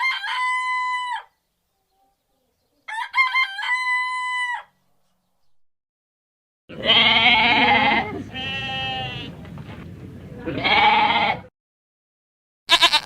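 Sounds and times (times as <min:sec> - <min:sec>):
farm animal wavering cries: 0:06.7 - 0:09.3, 0:10.5 - 0:11.5, 0:12.7 - 0:13.0.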